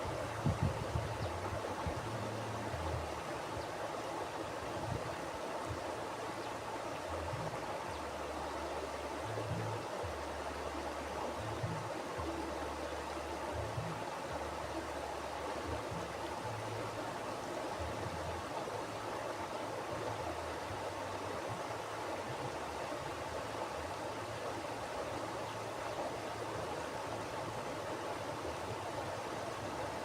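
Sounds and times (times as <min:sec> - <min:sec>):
river water rushing: 0:00.0 - 0:30.0.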